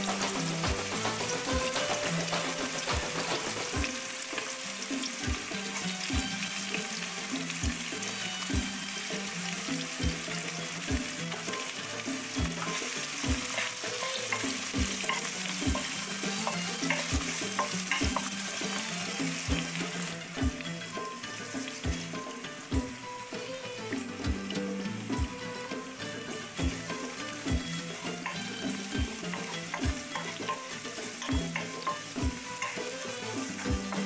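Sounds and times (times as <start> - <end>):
hot oil sizzling: 0.0 - 34.0
spatula stirring in a wok: 9.0 - 20.0, 27.2 - 34.0.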